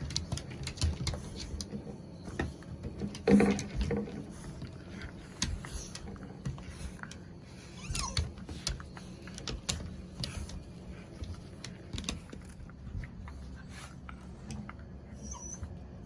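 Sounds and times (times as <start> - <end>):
dog claws tapping on hard floor: 0.0 - 7.2.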